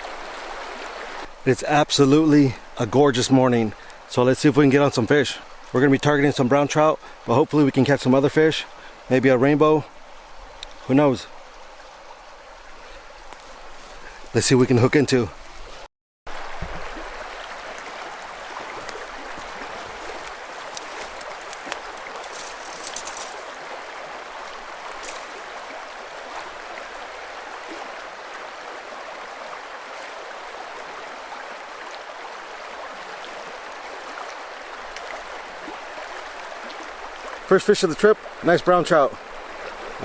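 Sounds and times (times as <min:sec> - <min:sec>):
river water rushing over rocks: 0:00.0 - 0:09.0, 0:16.3 - 0:40.0
faint clicks: 0:10.6 - 0:10.8.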